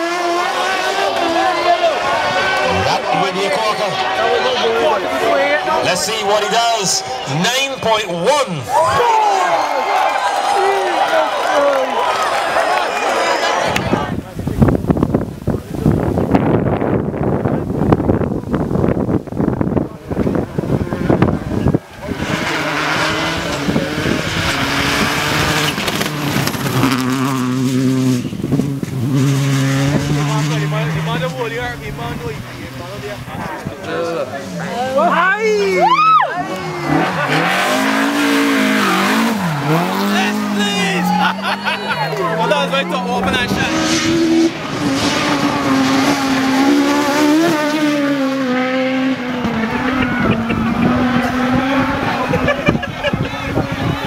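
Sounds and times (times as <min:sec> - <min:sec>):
race car engine at high revs: 0:00.0 - 0:08.7, 0:15.8 - 0:54.0
exhaust crackle: 0:14.5 - 0:33.8
race car engine running: 0:19.0 - 0:33.1.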